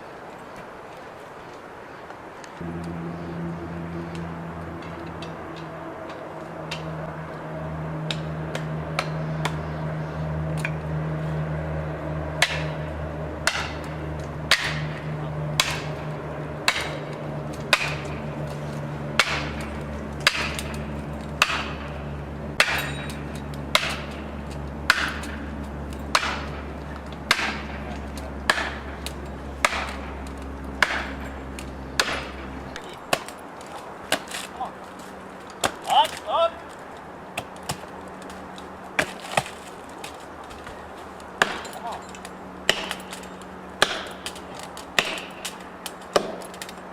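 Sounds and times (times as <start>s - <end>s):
engine drone: 2.5s - 46.9s
sharp hard strikes: 12.4s - 18.4s.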